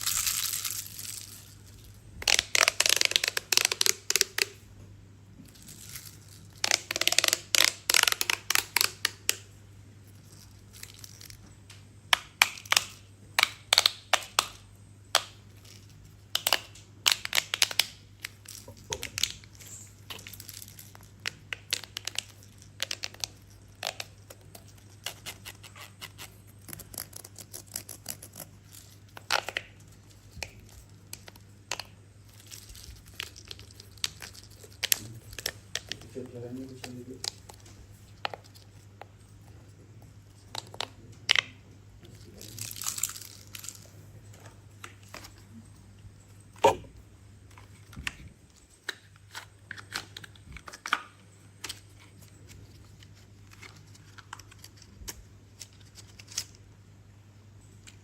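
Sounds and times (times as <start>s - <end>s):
faint low hum: 0.0s - 58.0s
crinkly plastic being handled: 17.1s - 45.7s, 47.5s - 56.6s.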